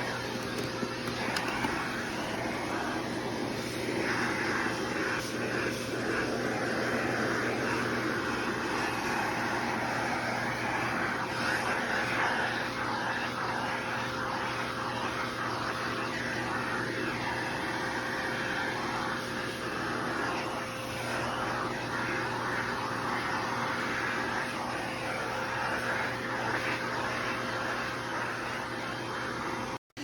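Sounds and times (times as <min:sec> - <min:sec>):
pet grooming vacuum running: 0:00.0 - 0:29.8.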